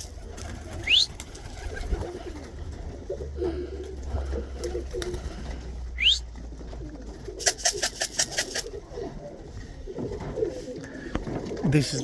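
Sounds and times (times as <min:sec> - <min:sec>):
pigeons cooing: 0:00.0 - 0:12.0
short rising whistle: 0:06.0 - 0:06.3
quick sharp rattle: 0:07.4 - 0:08.7.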